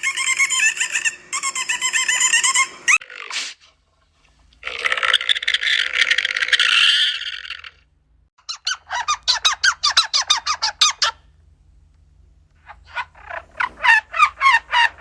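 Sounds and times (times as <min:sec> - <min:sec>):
animal squeaking: 0:00.0 - 0:03.5, 0:08.4 - 0:11.3, 0:12.6 - 0:15.0.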